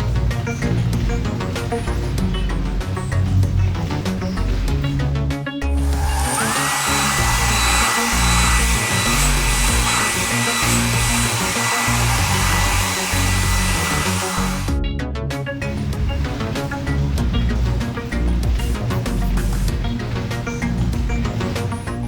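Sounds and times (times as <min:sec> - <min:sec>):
light background music: 0:00.0 - 0:22.0
electric air blower hissing: 0:05.7 - 0:14.8, 0:15.8 - 0:22.0.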